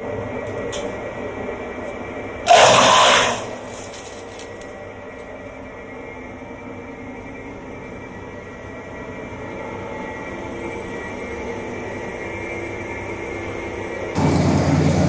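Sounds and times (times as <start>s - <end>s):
bamboo going through chipper: 2.5s - 4.8s, 14.2s - 15.0s
wood chipper running: 14.2s - 15.0s.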